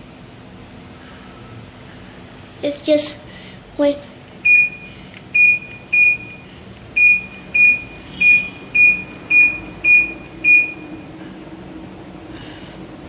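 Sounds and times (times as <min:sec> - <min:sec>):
air conditioner short high beeps: 0:04.4 - 0:11.2.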